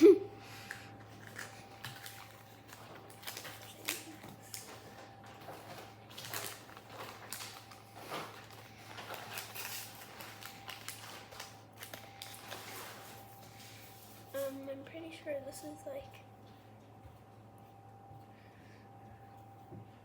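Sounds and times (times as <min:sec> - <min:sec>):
plastic bags rustling: 0:00.6 - 0:14.8.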